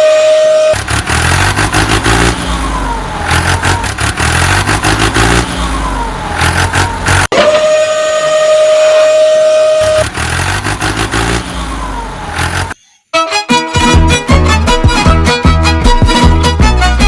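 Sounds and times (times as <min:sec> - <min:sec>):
truck engine revving with clattering: 0:00.0 - 0:12.8.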